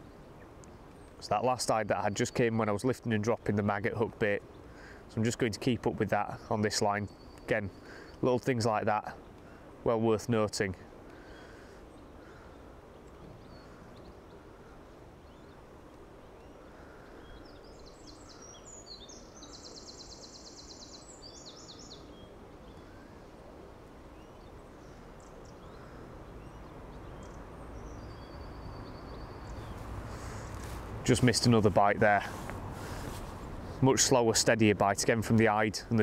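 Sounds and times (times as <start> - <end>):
songbird trilling: 16.3 - 23.1, 24.2 - 31.8.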